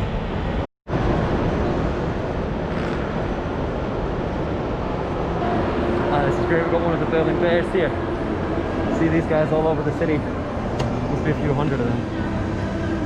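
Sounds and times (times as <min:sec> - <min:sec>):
city traffic rush: 0:00.0 - 0:13.0.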